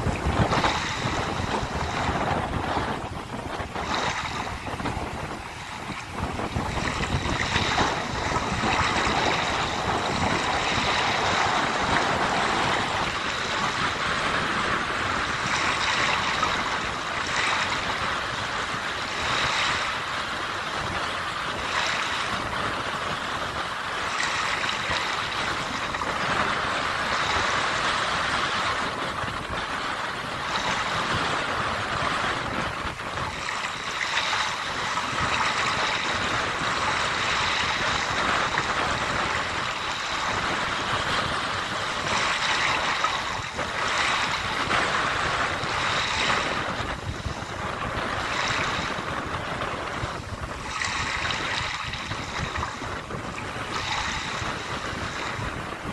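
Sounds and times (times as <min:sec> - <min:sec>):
sea waves breaking: 0:00.0 - 0:55.9
wind: 0:00.0 - 0:55.9.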